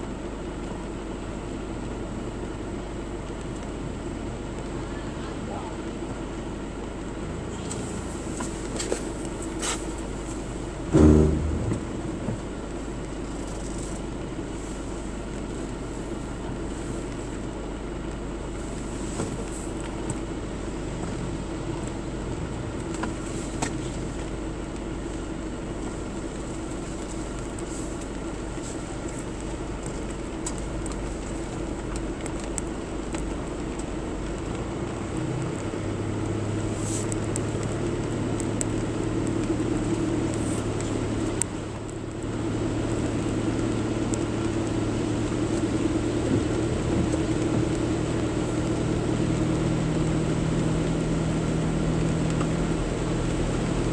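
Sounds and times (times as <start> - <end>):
road noise: 0.0 - 53.9
vehicle engine hum: 0.0 - 53.9
deeper engine note: 10.8 - 12.6.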